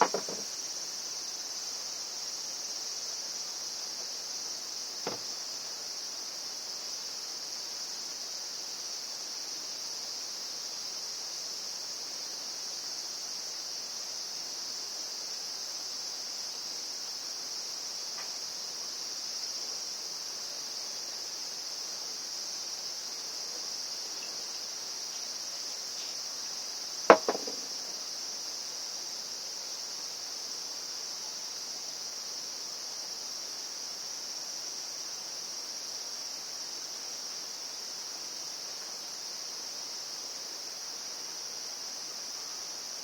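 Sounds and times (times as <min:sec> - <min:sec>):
sharp knock: 0:00.0 - 0:00.4, 0:05.1 - 0:05.3, 0:27.1 - 0:27.8
high-pitched insect chorus: 0:00.0 - 0:43.0.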